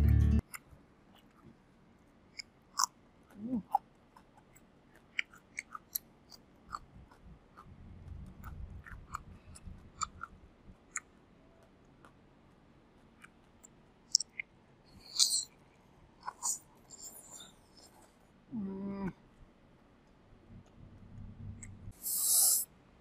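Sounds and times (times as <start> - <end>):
person chewing with lip smacks: 16.2 - 18.0.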